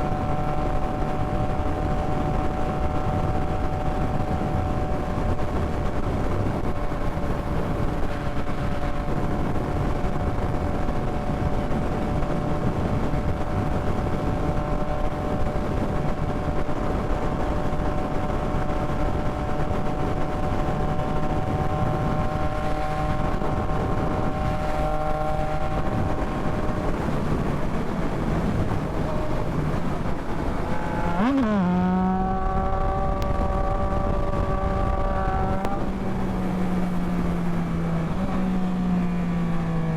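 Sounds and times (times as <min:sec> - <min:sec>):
wind rushing: 0:00.0 - 0:38.8
motorcycle engine running: 0:00.0 - 0:39.9.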